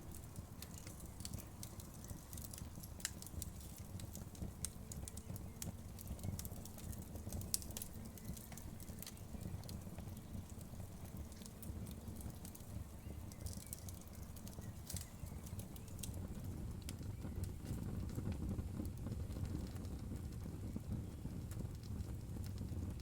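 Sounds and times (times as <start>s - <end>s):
logs popping and snapping: 0.0s - 12.7s, 13.3s - 17.0s
low rumble of flames: 0.0s - 23.0s.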